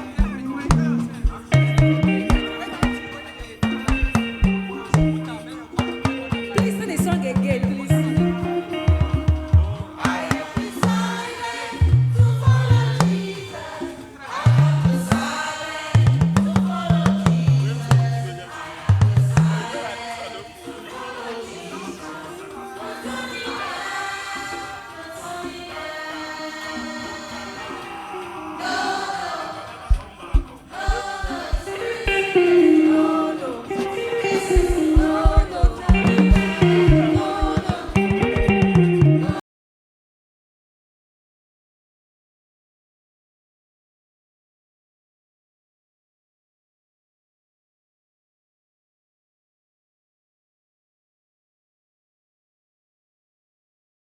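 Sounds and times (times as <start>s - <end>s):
low drum beats: 0.0s - 5.4s, 6.0s - 10.0s, 16.0s - 18.3s, 18.9s - 19.7s, 29.9s - 32.4s, 34.4s - 39.4s
bass line: 0.0s - 10.0s, 11.8s - 13.2s, 14.5s - 15.3s, 16.0s - 19.7s, 34.5s - 39.4s
live band playing: 0.0s - 13.4s, 29.9s - 39.4s
choir singing: 0.0s - 39.4s
sharp drum hits: 29.9s - 32.3s.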